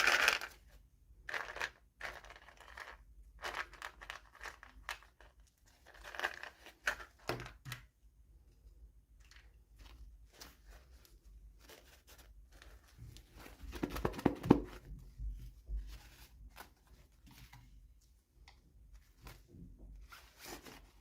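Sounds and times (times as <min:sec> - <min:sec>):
wrapping rustling and tearing: 0:19.1 - 0:21.0.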